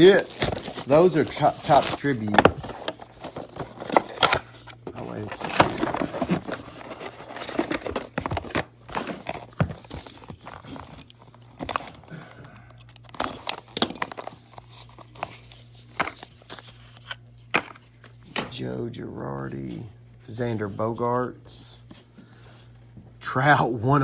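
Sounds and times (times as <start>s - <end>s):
foil wrappers tearing and crinkling: 0.0s - 4.4s
cards rustling and clicking: 0.0s - 12.0s, 12.8s - 18.6s
steady low hum: 0.0s - 24.0s.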